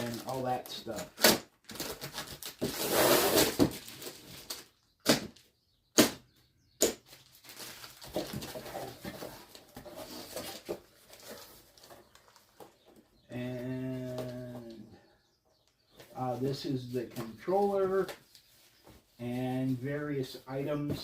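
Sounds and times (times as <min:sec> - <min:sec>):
cardboard packaging rustling: 0:00.0 - 0:04.7, 0:07.0 - 0:12.7.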